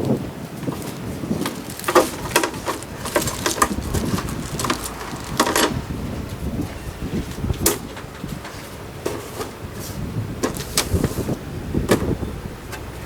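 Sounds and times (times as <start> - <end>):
metal parts clicking and knocking: 0.5 - 9.6.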